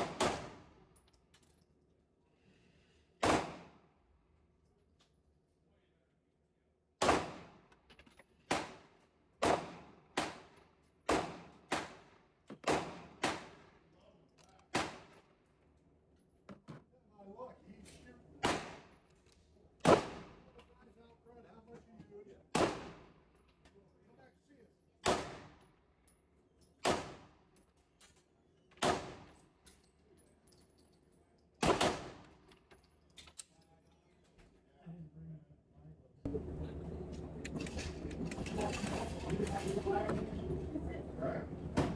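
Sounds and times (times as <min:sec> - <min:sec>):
handgun shots with echo: 0:00.0 - 0:00.7, 0:03.2 - 0:03.7, 0:07.0 - 0:07.5, 0:09.4 - 0:10.5, 0:11.1 - 0:12.0, 0:12.6 - 0:13.6, 0:14.7 - 0:15.2, 0:18.4 - 0:18.9, 0:19.8 - 0:20.3, 0:22.5 - 0:23.0, 0:25.0 - 0:25.5, 0:26.8 - 0:27.3, 0:28.8 - 0:29.4, 0:31.6 - 0:32.4.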